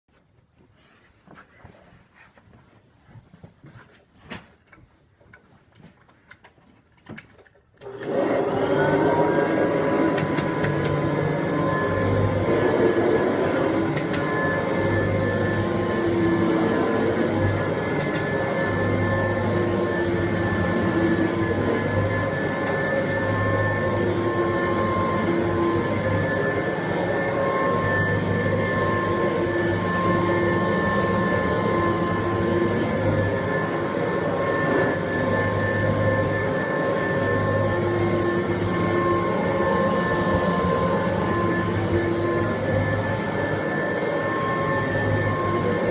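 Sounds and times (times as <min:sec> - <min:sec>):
handling knocks and clicks: 0:04.3 - 0:07.8
vacuum cleaner motor whine: 0:07.8 - 0:45.9.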